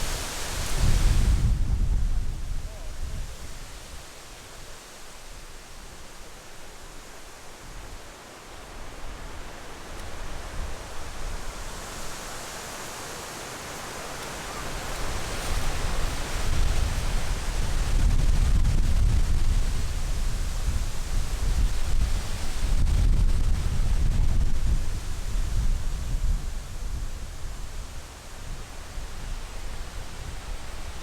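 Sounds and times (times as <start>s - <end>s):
strong wind buffeting microphone: 0.0s - 3.8s, 14.4s - 31.0s.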